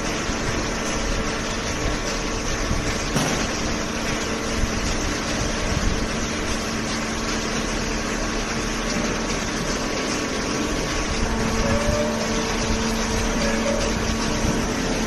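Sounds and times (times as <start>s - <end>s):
hydraulic pump and motor hum: 0.0s - 15.0s
held machine tones: 10.8s - 15.0s.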